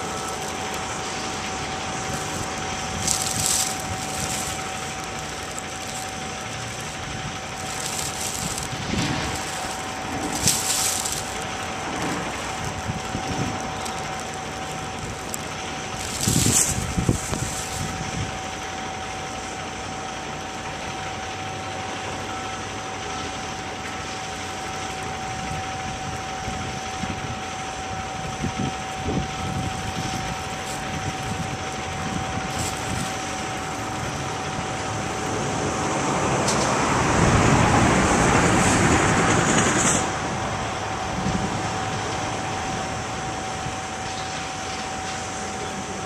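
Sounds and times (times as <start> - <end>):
steady whine: 0.0 - 35.8
truck engine running: 0.0 - 46.0.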